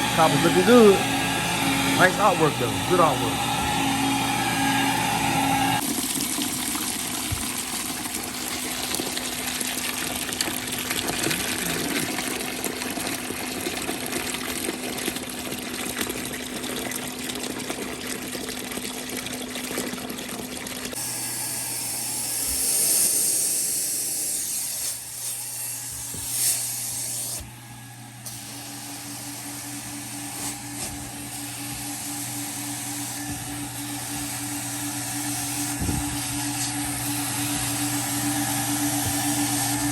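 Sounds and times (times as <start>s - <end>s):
carpet extractor spraying and sucking: 0.0s - 5.8s, 21.0s - 27.5s, 28.2s - 39.9s.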